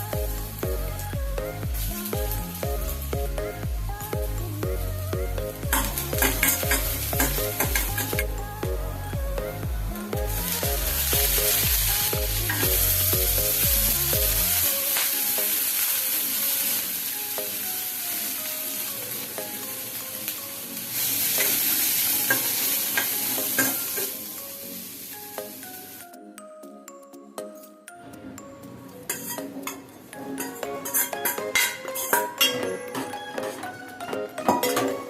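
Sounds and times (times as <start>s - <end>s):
light background music: 0.0s - 35.0s
food sizzling in a pan: 10.4s - 26.0s.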